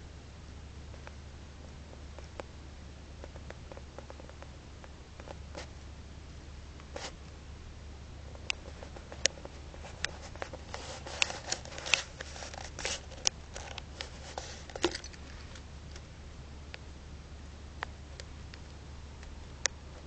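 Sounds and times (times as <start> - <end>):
budgie pecking and scrabbling: 0.9 - 5.7, 8.2 - 16.1.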